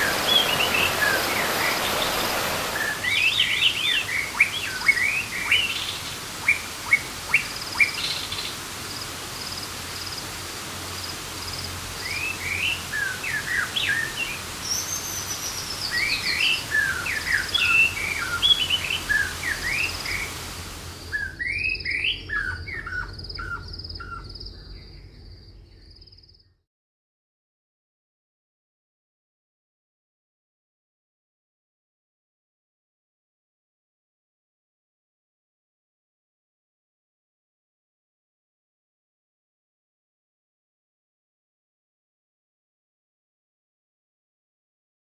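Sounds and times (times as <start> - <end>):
birds chirping: 0.0 - 10.3, 11.0 - 25.4
rainforest background hiss: 0.0 - 26.2.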